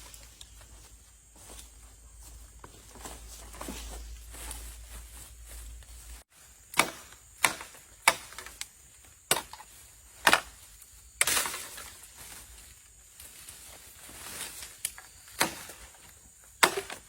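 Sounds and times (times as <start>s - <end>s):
axe chopping wood: 6.7s - 8.6s, 9.3s - 10.6s, 15.4s - 15.8s, 16.6s - 17.0s.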